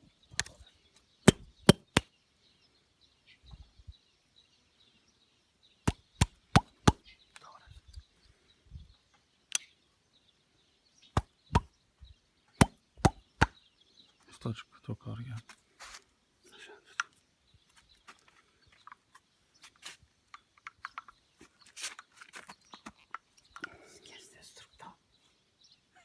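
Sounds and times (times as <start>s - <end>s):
sharp knocks: 1.3s - 2.0s, 12.6s - 13.5s.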